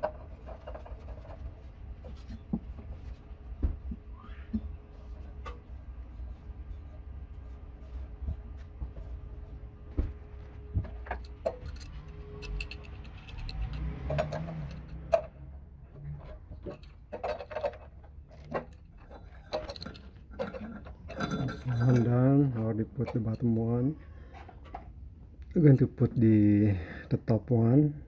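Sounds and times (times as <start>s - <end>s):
metal clicks and knocks: 10.8s - 22.2s.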